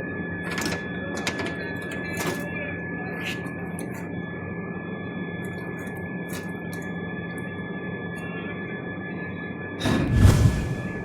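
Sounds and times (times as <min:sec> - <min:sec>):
gas torch flame roaring: 0:09.8 - 0:11.0.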